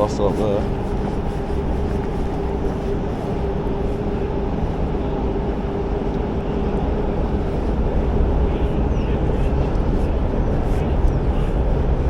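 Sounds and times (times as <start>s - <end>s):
motor-like drone: 0.0s - 12.0s
wind on microphone: 0.0s - 12.0s.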